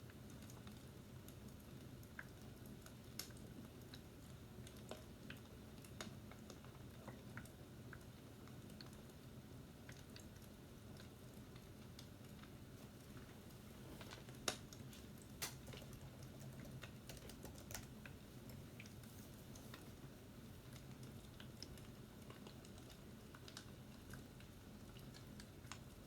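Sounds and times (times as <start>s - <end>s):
light clicks and taps: 9.8s - 19.9s.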